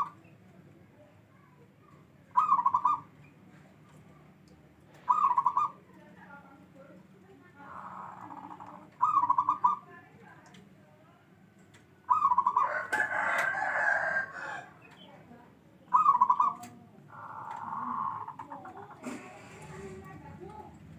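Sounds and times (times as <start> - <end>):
dove cooing: 2.3 - 3.1, 5.0 - 5.8, 7.6 - 9.9, 12.1 - 14.6, 15.9 - 20.7.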